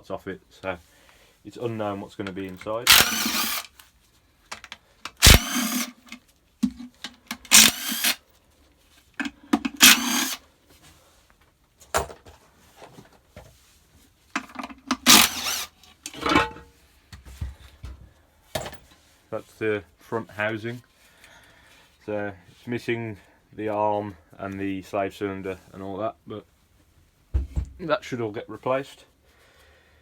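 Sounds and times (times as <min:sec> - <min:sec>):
impact gun undoing bolts: 0:02.9 - 0:03.7, 0:04.6 - 0:08.2, 0:09.6 - 0:10.4, 0:14.5 - 0:16.5.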